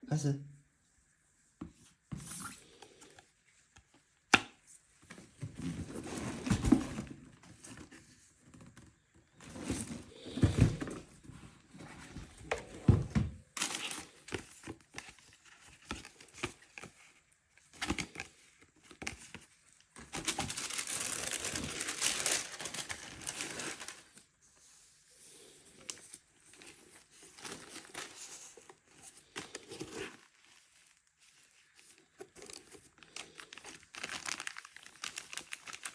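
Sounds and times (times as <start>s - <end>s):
paper packaging crinkling: 13.6s - 17.0s, 20.0s - 24.3s, 26.4s - 35.9s.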